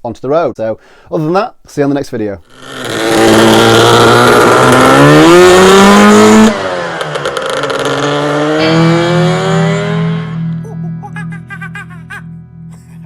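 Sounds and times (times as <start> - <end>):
scooter engine accelerating: 2.5 - 10.7.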